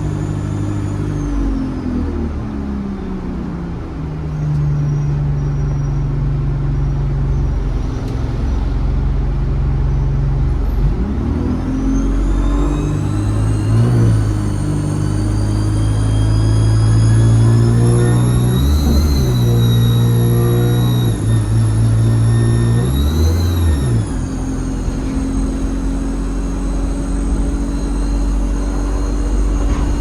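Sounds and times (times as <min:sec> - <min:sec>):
turbocharger whistle: 0:00.0 - 0:02.2, 0:09.8 - 0:30.0
bus diesel engine running: 0:00.0 - 0:30.0.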